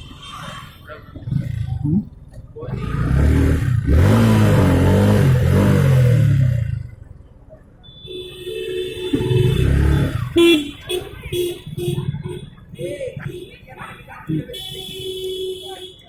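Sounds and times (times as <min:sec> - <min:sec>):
vehicle engine revving: 0:01.2 - 0:06.9, 0:09.2 - 0:10.4.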